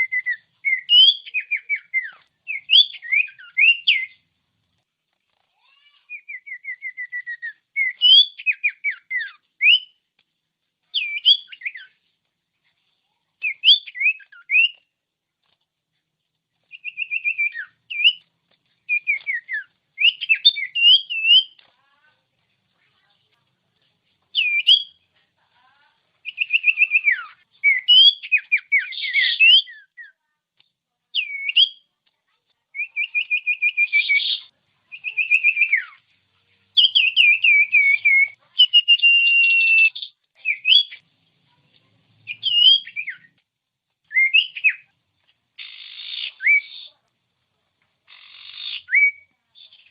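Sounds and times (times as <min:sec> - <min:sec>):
bird singing trills and whistles: 0:00.0 - 0:04.2, 0:06.0 - 0:10.0, 0:10.9 - 0:12.0, 0:13.4 - 0:14.9, 0:16.7 - 0:18.3, 0:18.9 - 0:21.6, 0:24.3 - 0:25.0, 0:26.2 - 0:30.2, 0:31.2 - 0:31.9, 0:32.8 - 0:36.0, 0:36.8 - 0:41.0, 0:42.2 - 0:43.4, 0:44.1 - 0:44.9, 0:45.6 - 0:47.0, 0:48.1 - 0:49.9.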